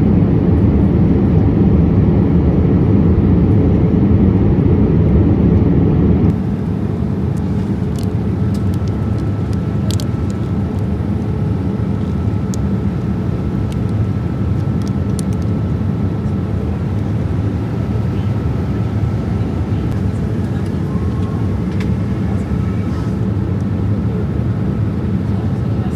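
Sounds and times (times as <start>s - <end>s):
aircraft cabin rumble: 0.0s - 25.9s
faint high tone: 19.5s - 23.2s.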